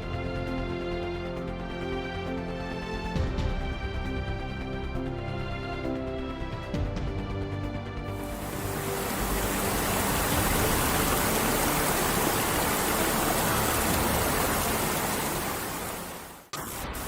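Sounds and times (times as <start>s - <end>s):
water rushing: 8.3s - 17.0s.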